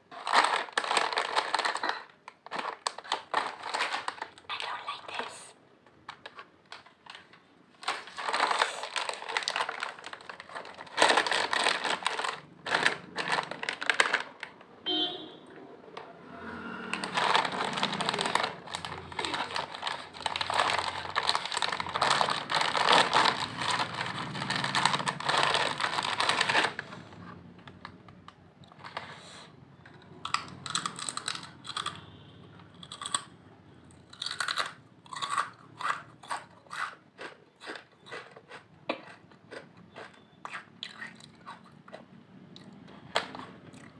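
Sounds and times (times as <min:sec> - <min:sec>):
potato chips crunching: 0:00.1 - 0:04.4, 0:07.8 - 0:14.5, 0:17.0 - 0:27.0, 0:30.0 - 0:32.0, 0:32.8 - 0:33.4, 0:34.0 - 0:43.9
chip bag crinkling: 0:00.1 - 0:05.4, 0:06.0 - 0:14.6, 0:17.0 - 0:27.0, 0:30.1 - 0:32.0, 0:34.1 - 0:40.1.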